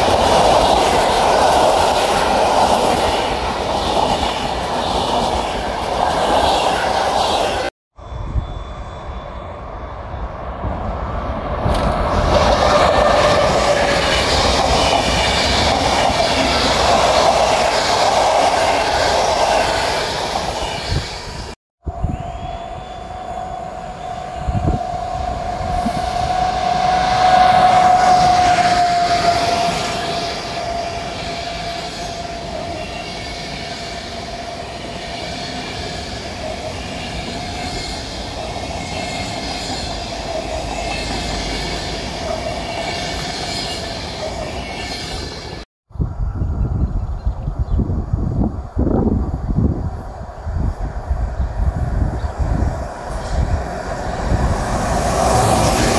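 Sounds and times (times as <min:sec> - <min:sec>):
train wheels squealing: 0:00.0 - 0:47.8, 0:50.6 - 0:55.9
train wheels clattering on rails: 0:10.6 - 0:21.6.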